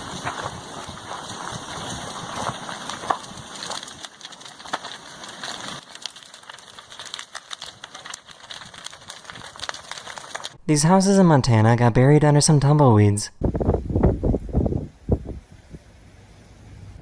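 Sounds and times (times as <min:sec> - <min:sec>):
sharp cracks: 0:00.0 - 0:10.6
house fire crackling and popping: 0:00.0 - 0:11.1.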